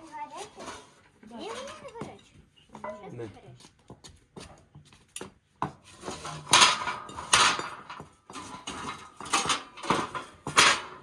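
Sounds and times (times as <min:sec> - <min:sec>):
metal objects clanking: 0:00.0 - 0:03.1, 0:05.9 - 0:11.0.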